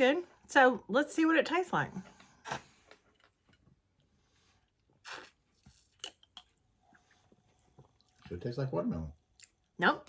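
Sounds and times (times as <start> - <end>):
person sipping from bottle: 5.0 - 5.9.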